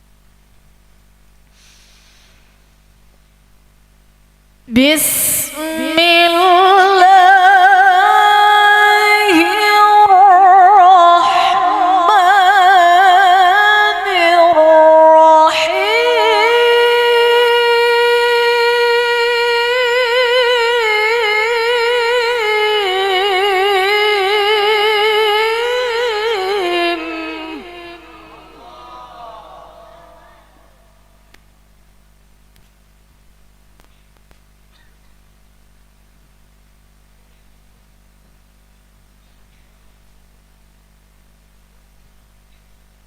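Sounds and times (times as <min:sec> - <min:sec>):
woman reciting melodically: 0:04.7 - 0:30.7.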